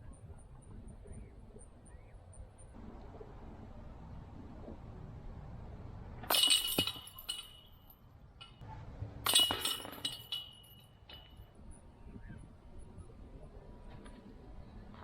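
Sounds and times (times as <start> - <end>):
metal chains jingling and clanking: 6.3 - 8.6, 9.3 - 11.4.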